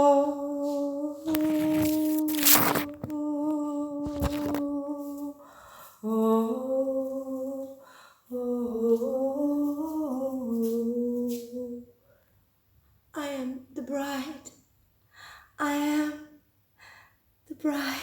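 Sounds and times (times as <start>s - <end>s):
person humming: 0.0s - 5.2s.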